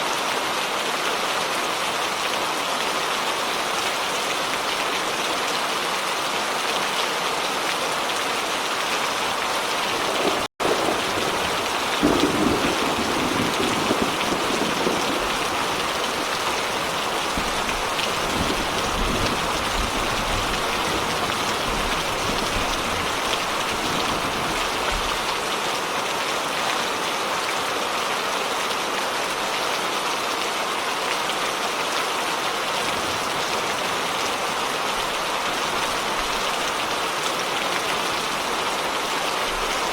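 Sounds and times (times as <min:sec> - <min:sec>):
heavy rain: 0:00.0 - 0:39.9
low rumble of thunder: 0:10.0 - 0:25.3, 0:32.8 - 0:36.9.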